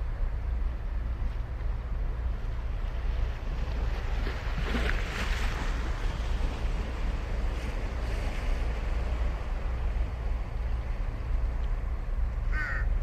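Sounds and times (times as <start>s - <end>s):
crow caw: 12.5s - 12.9s.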